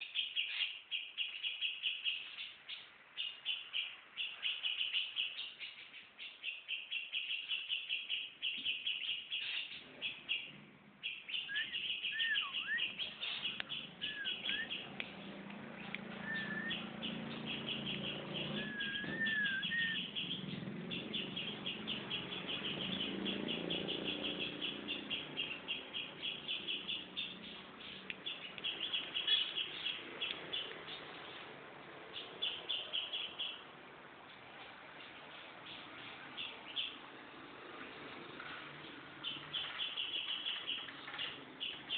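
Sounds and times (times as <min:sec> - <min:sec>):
songbird chirping: 0:00.0 - 0:41.9
lower whistled notes sliding: 0:16.1 - 0:16.8, 0:18.4 - 0:20.1.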